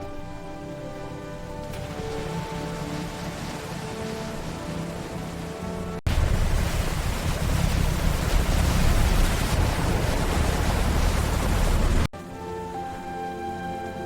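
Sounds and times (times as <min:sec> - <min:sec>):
heavy rain rushing: 0:01.7 - 0:12.1.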